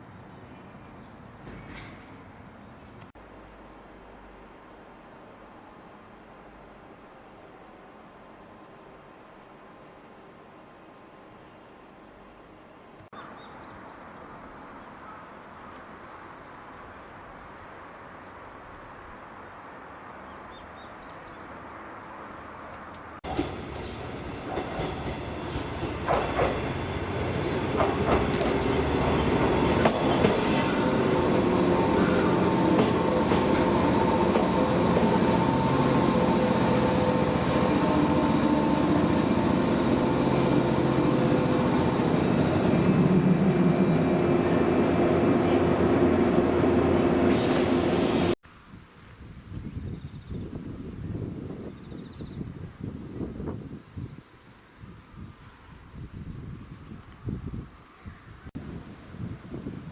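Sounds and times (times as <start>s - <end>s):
train rail noise: 1.4s - 2.5s, 22.8s - 48.4s
electric train whining: 23.3s - 48.4s.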